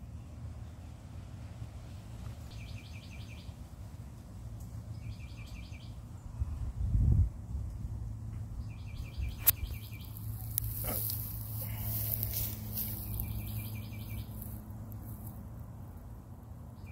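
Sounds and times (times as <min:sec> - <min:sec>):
steady low hum: 0:00.0 - 0:16.9
bird chirping: 0:02.5 - 0:03.6, 0:04.9 - 0:06.6, 0:08.5 - 0:15.3, 0:16.7 - 0:16.9.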